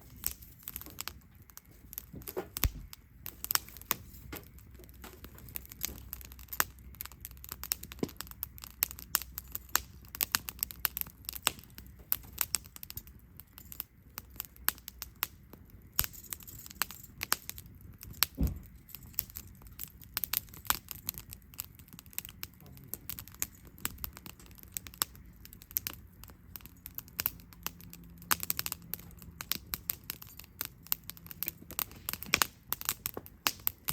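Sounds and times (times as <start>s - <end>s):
campfire crackling and popping: 0.0s - 33.9s
low thump: 18.4s - 18.7s.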